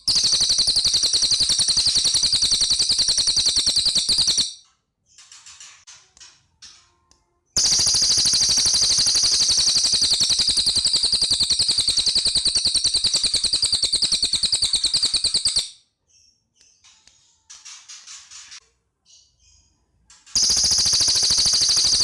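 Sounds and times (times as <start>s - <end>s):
bird chirping and trilling: 0.0s - 5.5s, 7.6s - 16.9s, 20.4s - 22.0s.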